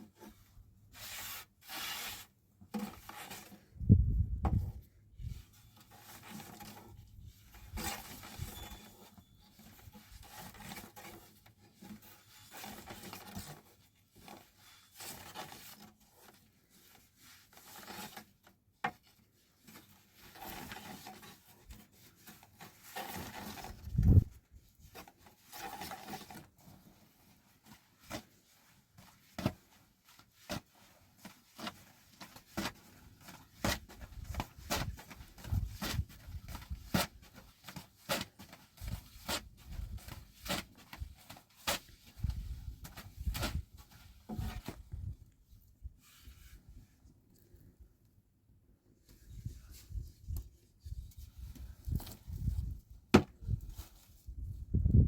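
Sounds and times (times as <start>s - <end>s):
rubbing scraping on wood: 0.9s - 2.3s.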